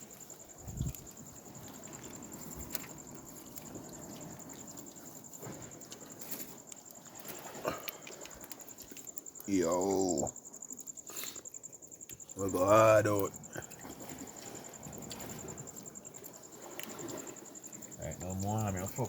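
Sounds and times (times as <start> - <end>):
high-pitched insect trill: 0.0 - 19.0
faint clicks: 5.8 - 9.5.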